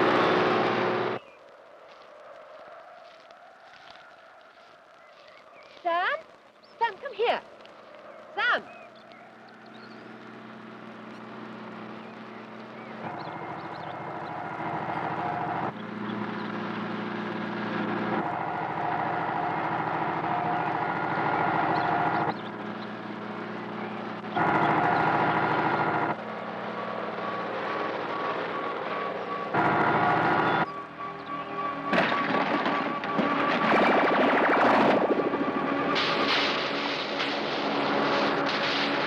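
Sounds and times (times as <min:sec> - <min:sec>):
tractor engines under load: 0:09.4 - 0:39.0.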